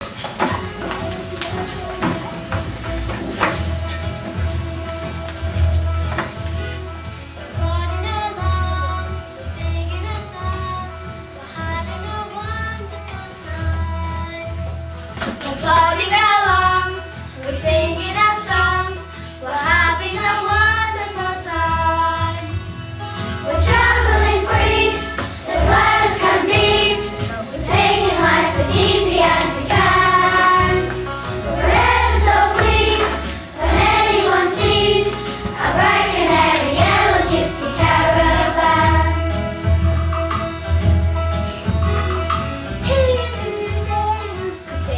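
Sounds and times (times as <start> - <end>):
musical accompaniment with bass: 0.0 - 44.9
children's choir singing: 15.5 - 17.0, 17.9 - 22.5, 23.4 - 39.7.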